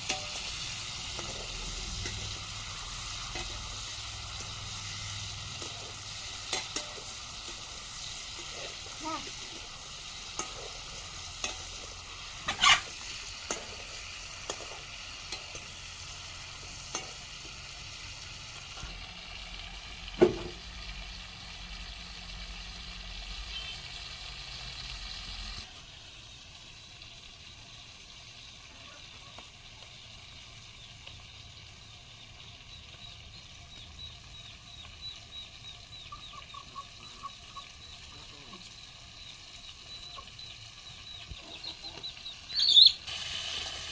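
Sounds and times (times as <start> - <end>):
food sizzling in frying pan: 0.0 - 43.9
chicken clucking and chirping: 0.7 - 17.4, 30.0 - 43.1.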